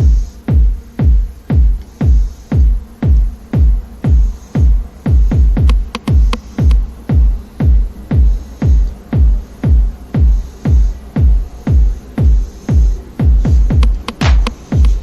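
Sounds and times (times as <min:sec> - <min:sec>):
electronic music with kick drum: 0:00.0 - 0:15.0.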